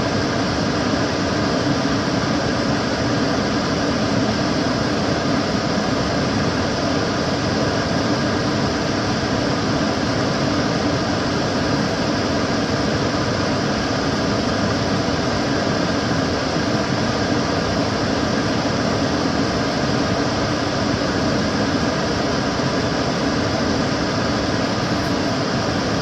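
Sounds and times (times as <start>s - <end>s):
extractor fan running: 0.0s - 26.0s.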